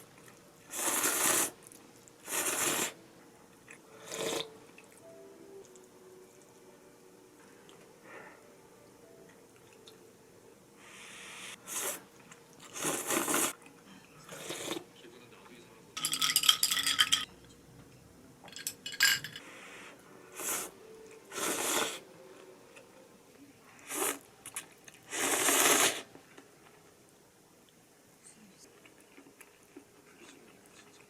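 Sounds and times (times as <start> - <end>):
dishes clattering and scraping: 16.0 - 17.3, 18.5 - 19.4
ringing clinks of dishes: 16.0 - 17.3, 18.5 - 19.4.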